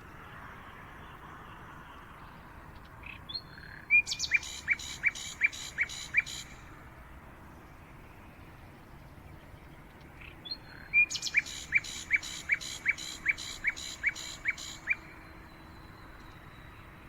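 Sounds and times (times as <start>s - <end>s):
faint outdoor hiss: 0.0s - 17.0s
songbird calling sharp notes: 3.3s - 6.6s, 10.4s - 16.8s.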